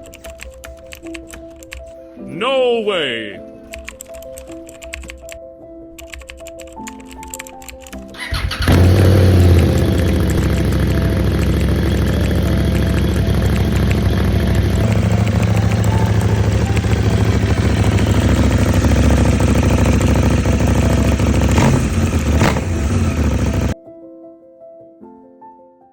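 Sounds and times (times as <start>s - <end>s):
soft piano music: 0.0s - 21.2s, 23.7s - 25.9s
motorcycle engine running: 8.2s - 23.8s.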